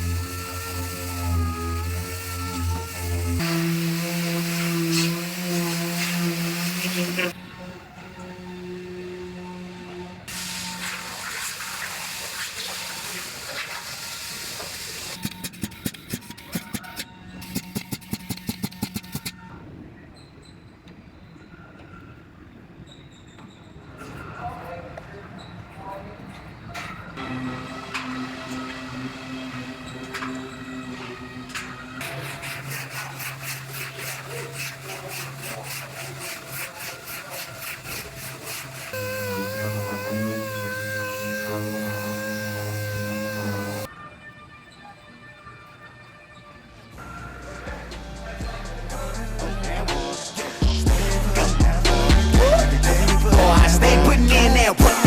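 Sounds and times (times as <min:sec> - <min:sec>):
sandpaper rubbing back and forth: 0:00.0 - 0:07.4, 0:10.2 - 0:19.3, 0:31.3 - 0:43.9
steady hiss: 0:00.0 - 0:07.4, 0:10.3 - 0:15.9, 0:32.0 - 0:43.9.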